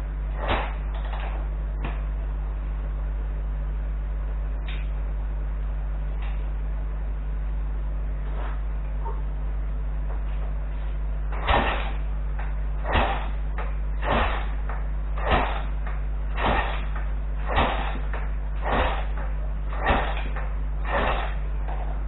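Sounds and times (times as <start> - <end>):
electrical hum: 0.0 - 22.0
short noisy strokes: 14.0 - 14.6, 15.2 - 21.8.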